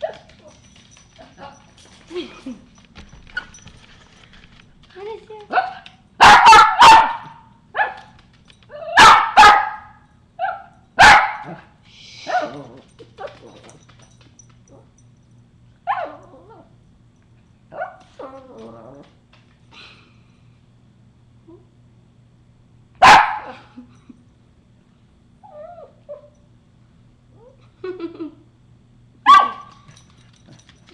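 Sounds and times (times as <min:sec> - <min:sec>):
dog barking: 0:05.5 - 0:08.1, 0:09.0 - 0:11.7, 0:23.0 - 0:23.6, 0:29.3 - 0:29.7
dog yipping: 0:08.8 - 0:11.4, 0:29.3 - 0:29.7.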